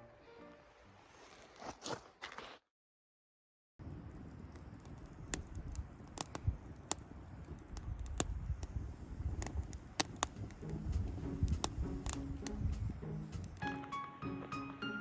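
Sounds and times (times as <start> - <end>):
campfire crackling: 3.8 - 15.0
faint music: 10.2 - 15.0
low rumble: 10.3 - 13.6.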